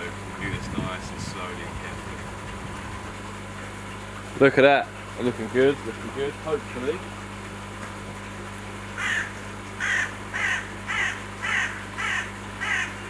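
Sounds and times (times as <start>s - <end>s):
crow cawing: 9.0s - 13.0s.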